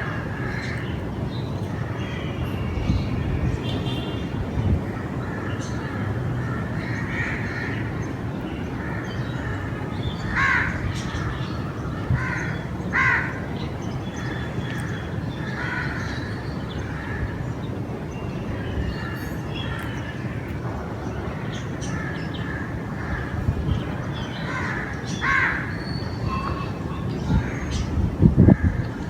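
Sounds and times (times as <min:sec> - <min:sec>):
crows cawing: 0:08.8 - 0:13.5, 0:14.2 - 0:17.4, 0:24.4 - 0:27.7.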